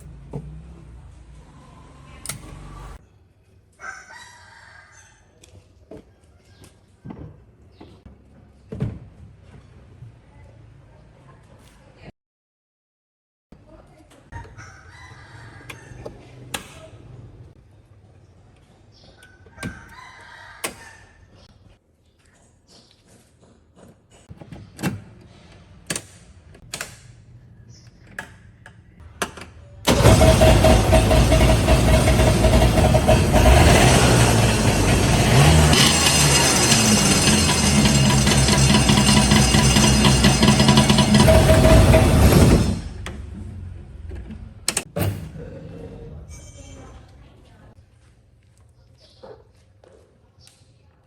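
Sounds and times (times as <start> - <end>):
rooster crowing: 3.8 - 5.3, 14.4 - 16.3, 19.6 - 21.2
sharp clicks and knocks: 25.9 - 27.0, 44.0 - 44.9
small engine running loudly: 29.9 - 43.0.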